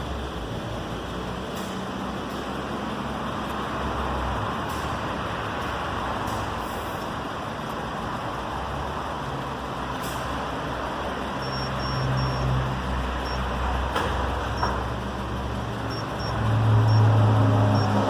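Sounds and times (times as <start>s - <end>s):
vehicle engine running: 0.0s - 18.0s
faint high beeps: 11.4s - 12.6s, 13.2s - 13.4s, 15.9s - 17.1s, 17.7s - 18.0s
sharp clicks: 11.4s - 15.0s, 15.8s - 18.0s.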